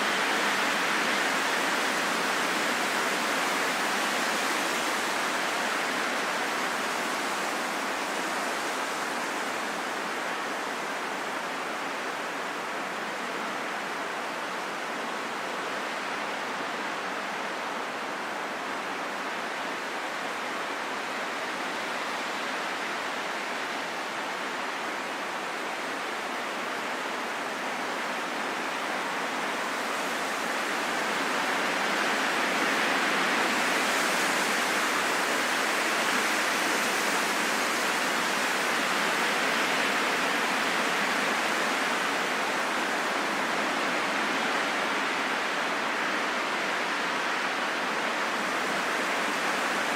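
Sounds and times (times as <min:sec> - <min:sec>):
steady rushing wind: 0:00.0 - 0:49.9.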